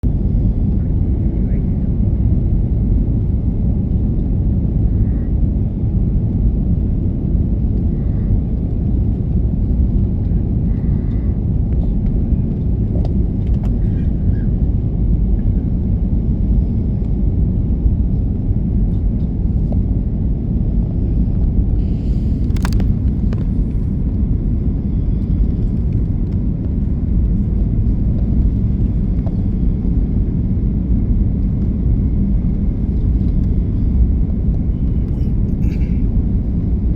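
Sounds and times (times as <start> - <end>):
airplane cabin engine rumble: 0.0 - 36.9.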